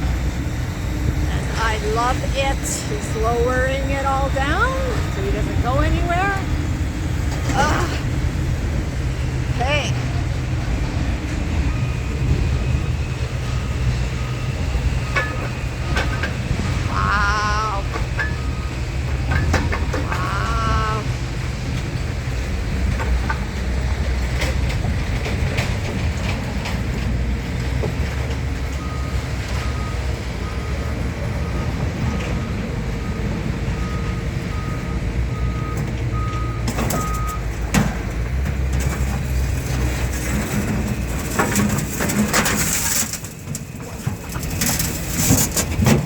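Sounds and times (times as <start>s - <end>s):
reversing alarm beeps: 0.0s - 8.0s, 11.5s - 16.9s, 17.9s - 19.5s, 28.4s - 37.5s
diesel truck engine running: 0.0s - 46.0s.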